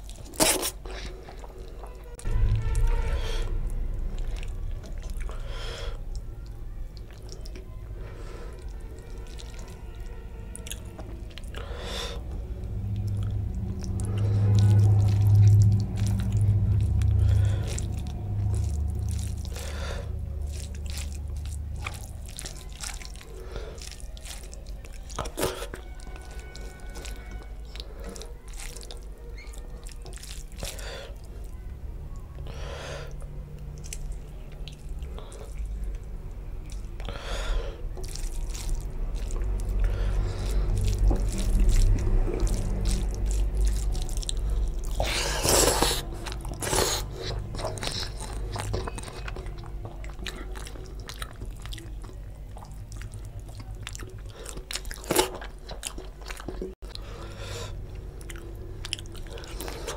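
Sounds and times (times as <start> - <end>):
wet chewing and squishing: 0.0 - 59.9
loud low hum: 2.2 - 6.9, 9.7 - 22.4, 35.0 - 54.3.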